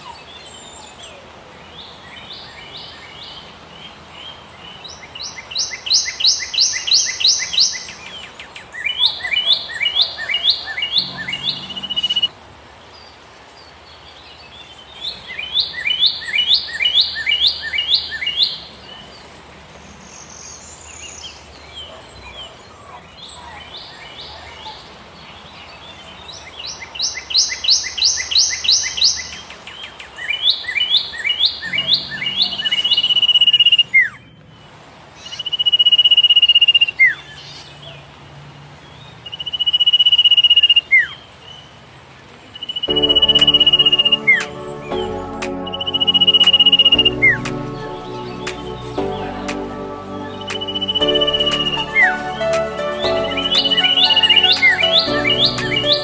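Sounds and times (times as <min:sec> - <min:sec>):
bird singing high chirps: 0:04.8 - 0:12.3, 0:26.7 - 0:29.5, 0:30.2 - 0:34.2, 0:42.6 - 0:56.0.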